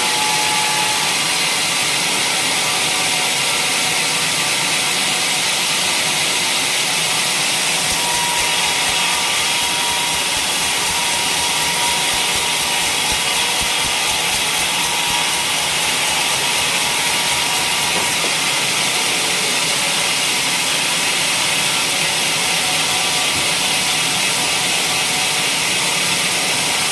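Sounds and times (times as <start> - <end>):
sawmill saw cutting timber: 0.0 - 26.9.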